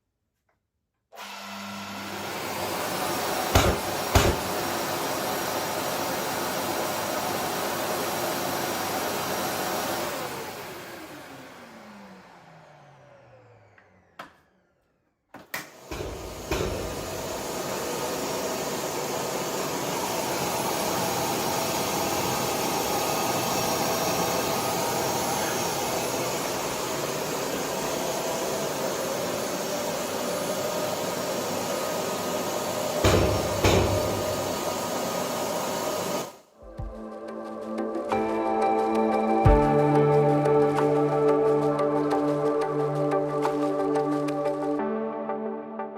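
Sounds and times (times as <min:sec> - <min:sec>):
vacuum cleaner motor running: 0:01.2 - 0:15.0, 0:15.6 - 0:36.4.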